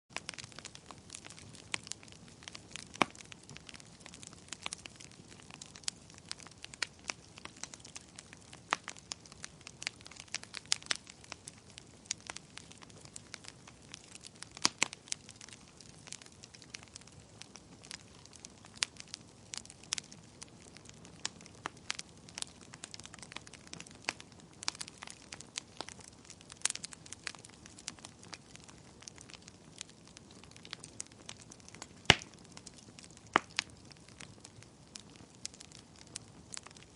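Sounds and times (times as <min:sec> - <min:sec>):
wood fire crackling: 0:00.1 - 0:36.9
logs popping and snapping: 0:31.6 - 0:33.7.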